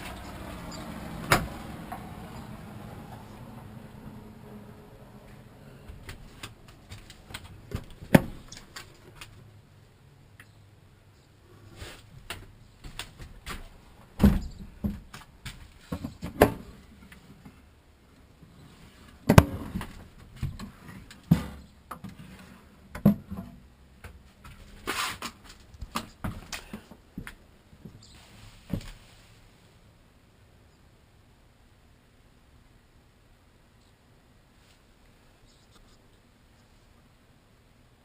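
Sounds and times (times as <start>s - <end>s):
cabinet doors opening and shutting: 0.0s - 2.1s, 5.9s - 8.8s.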